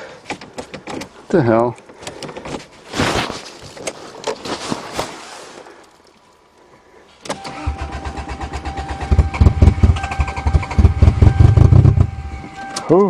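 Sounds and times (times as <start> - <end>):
starter motor cranking engine: 7.3 - 12.3.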